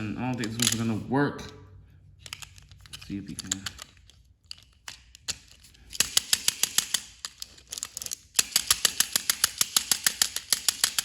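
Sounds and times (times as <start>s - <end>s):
toy train engine clicking: 2.2s - 11.0s.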